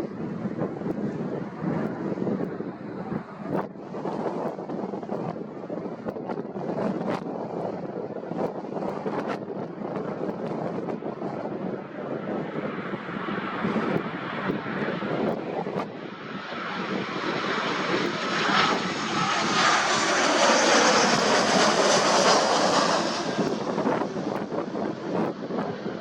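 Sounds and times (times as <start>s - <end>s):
wind rumbling on microphone: 0.0s - 26.0s
jet airliner passing: 12.3s - 26.0s.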